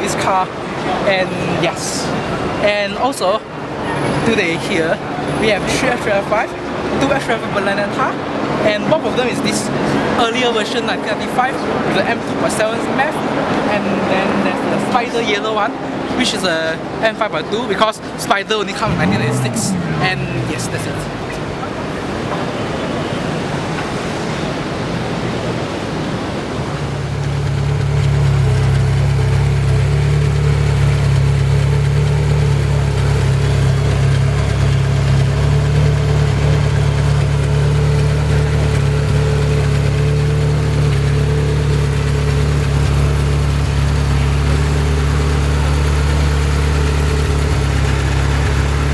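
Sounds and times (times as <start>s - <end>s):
car engine idling: 17.7s - 22.3s, 25.6s - 48.9s.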